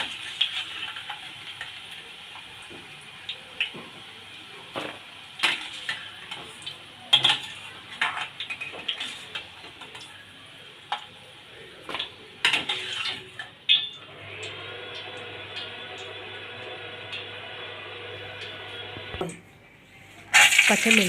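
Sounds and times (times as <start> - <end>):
oil sizzling: 0.0 - 19.2, 20.3 - 21.0
metal spoon scraping a pan: 12.5 - 13.3, 20.3 - 21.0.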